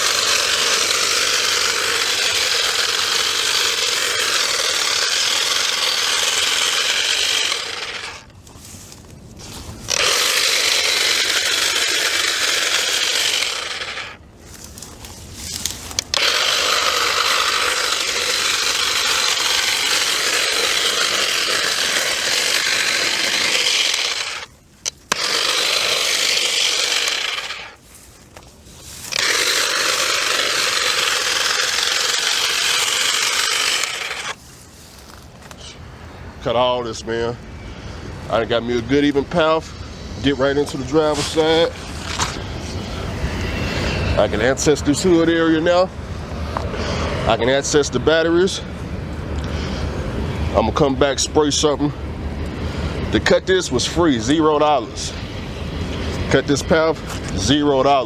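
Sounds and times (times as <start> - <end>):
power cutting tool cutting weeds: 0.0 - 35.8, 36.4 - 58.0.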